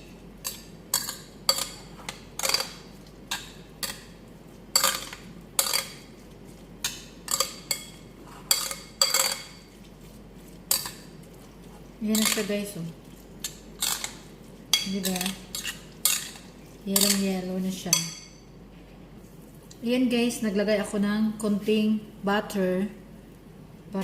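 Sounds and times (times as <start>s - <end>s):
utensil scraping a bowl: 0.4s - 17.3s.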